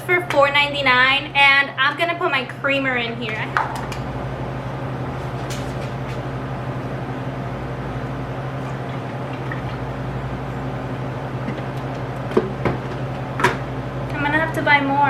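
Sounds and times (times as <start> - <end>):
steady low hum: 0.0 - 15.0
liquid pouring into container: 8.6 - 10.0.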